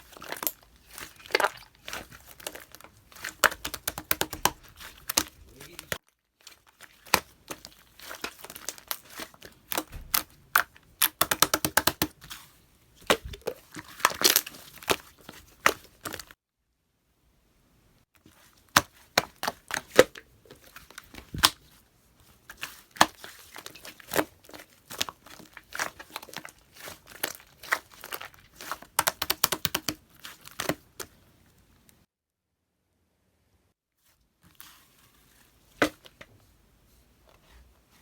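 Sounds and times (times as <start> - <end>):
hands squeezing sticky slime: 0.0 - 16.3, 18.3 - 31.2.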